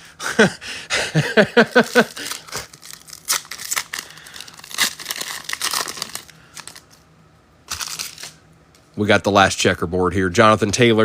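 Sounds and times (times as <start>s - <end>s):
foil wrapper tearing and crinkling: 1.6s - 7.0s, 7.7s - 8.4s.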